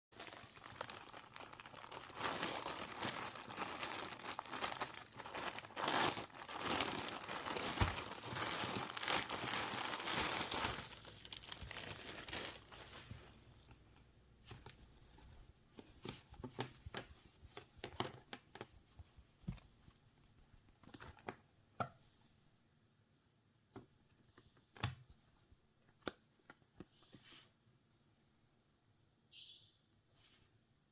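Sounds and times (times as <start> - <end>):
plastic packaging crinkling and tearing: 0.2 - 13.8.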